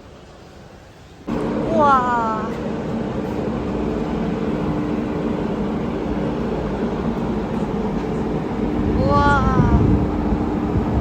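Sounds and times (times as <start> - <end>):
engine running steadily: 1.3 - 11.0.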